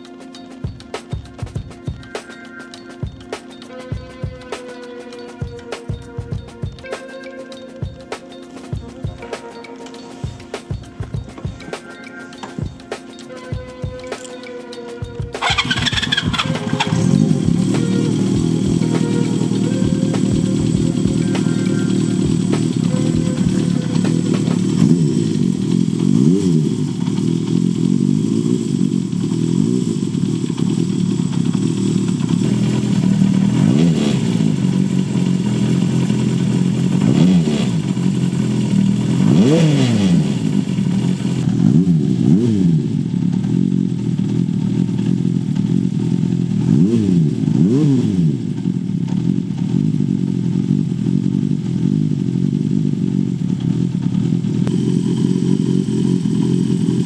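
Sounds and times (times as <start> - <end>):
motorcycle engine revving: 15.0 - 57.0.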